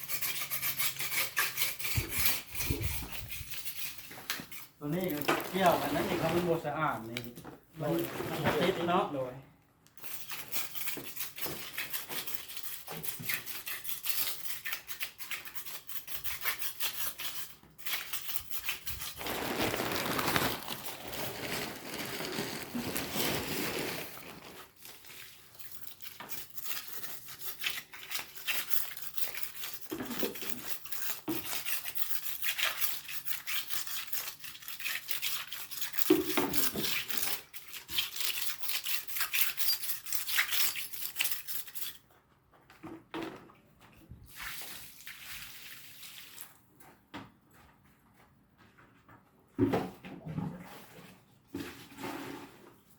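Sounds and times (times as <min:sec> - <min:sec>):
tool scraping hard surface: 0:00.0 - 0:04.8.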